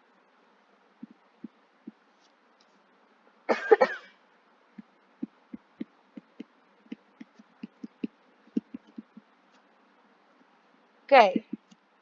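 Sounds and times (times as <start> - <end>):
light irregular taps: 4.8 - 9.7.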